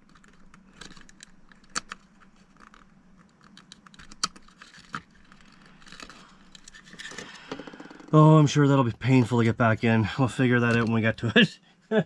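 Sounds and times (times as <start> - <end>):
light scraping of plastic parts: 0.0 - 8.1
small plastic clicks: 0.0 - 8.1.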